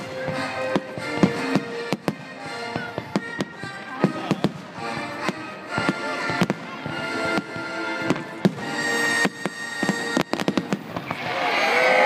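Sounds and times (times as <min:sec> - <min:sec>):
music playing: 0:00.0 - 0:11.0
fireworks bangs and crackles: 0:00.0 - 0:11.5
crowd cheering and shouting: 0:10.4 - 0:12.0.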